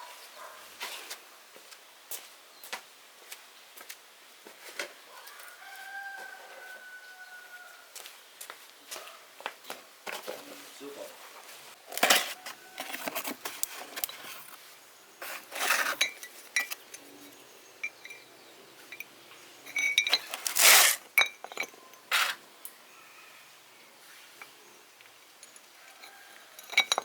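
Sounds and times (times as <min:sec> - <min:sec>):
metal tools clinking: 0:15.5 - 0:17.1, 0:17.8 - 0:18.3, 0:18.9 - 0:22.4, 0:25.4 - 0:27.0.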